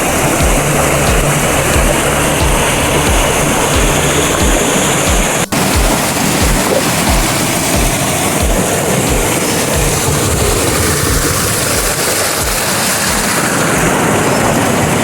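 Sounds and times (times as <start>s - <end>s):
low rumbles: 0.0s - 15.0s
waterfall rushing: 0.0s - 15.0s.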